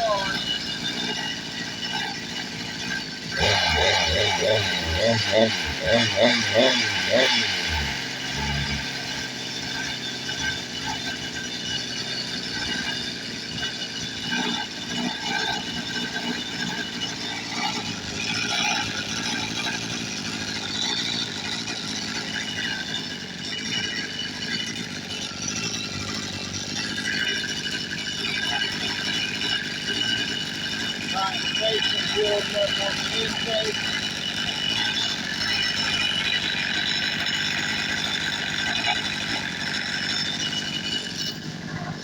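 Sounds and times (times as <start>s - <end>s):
person talking: 0.0s - 0.4s, 31.2s - 33.8s
small two-stroke engine running: 0.0s - 42.0s.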